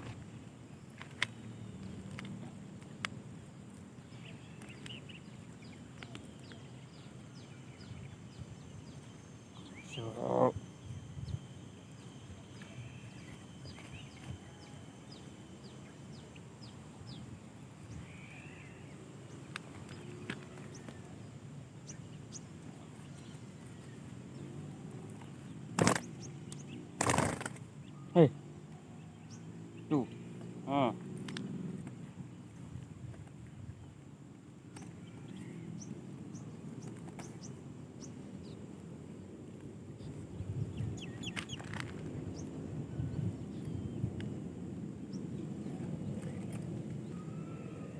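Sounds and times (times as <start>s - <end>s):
low background noise: 0.0s - 47.9s
small bird chirping: 0.7s - 32.9s, 39.9s - 44.3s.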